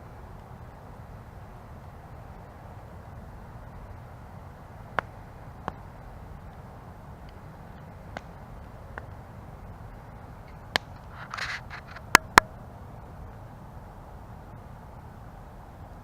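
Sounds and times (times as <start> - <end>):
campfire low rumble: 0.0 - 16.0
burning wood popping and cracking: 4.9 - 9.2.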